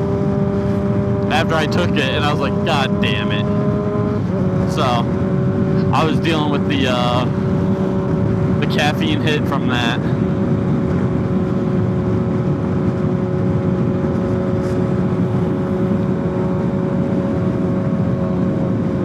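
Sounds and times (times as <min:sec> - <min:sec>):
motorcycle engine cruising: 0:00.0 - 0:08.7
wind and road noise: 0:00.0 - 0:19.0.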